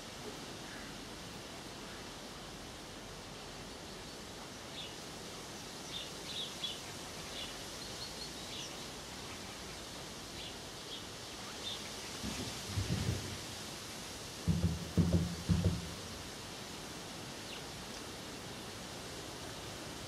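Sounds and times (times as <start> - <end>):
steady background hiss: 0.0 - 20.0
small birds chirping: 3.6 - 13.2.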